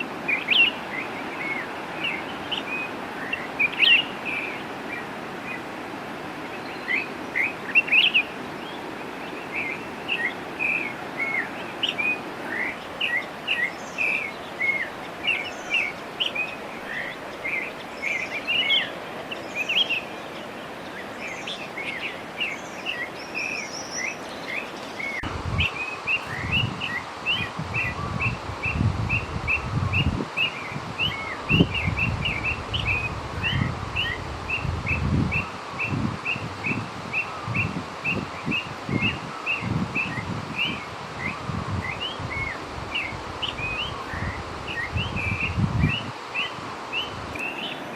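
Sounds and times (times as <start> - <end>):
wind rumbling on microphone: 25.0 - 47.9.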